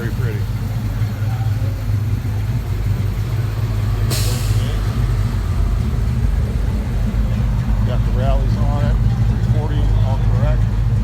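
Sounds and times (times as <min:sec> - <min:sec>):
car engine rumbling past: 0:00.0 - 0:11.0
short hiss: 0:04.1 - 0:04.8.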